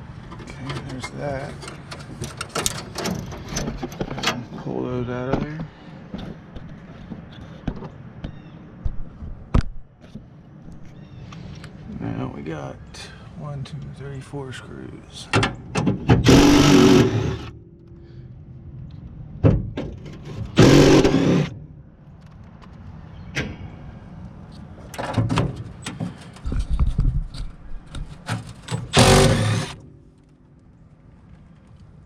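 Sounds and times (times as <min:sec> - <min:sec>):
impact driver running: 0:16.2 - 0:17.5, 0:20.6 - 0:21.5, 0:28.9 - 0:29.8.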